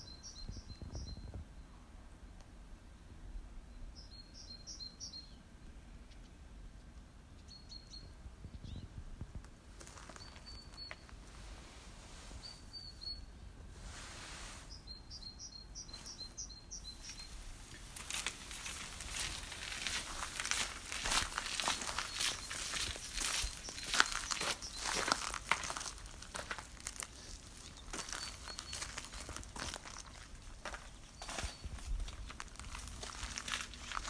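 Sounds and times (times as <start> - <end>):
small bird chirping: 0.0 - 1.4, 6.0 - 9.0, 9.9 - 11.2, 12.4 - 13.5, 14.6 - 25.5, 27.1 - 29.3
rustling crackling: 15.9 - 34.0.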